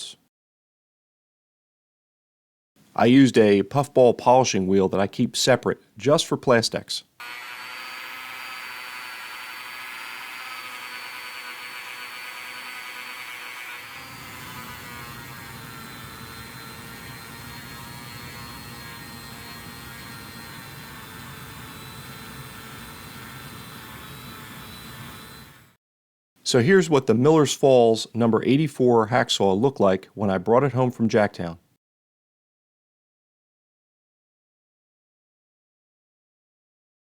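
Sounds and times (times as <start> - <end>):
rotary tool high-pitched whine: 7.2 - 25.8.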